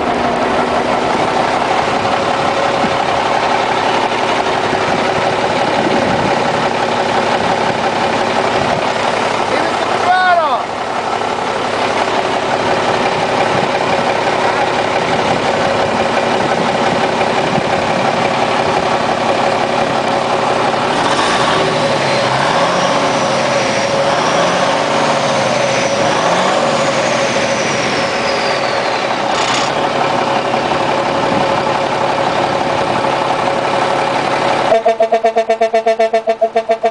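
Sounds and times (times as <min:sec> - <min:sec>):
diesel truck engine idling: 0:00.0 - 0:36.9.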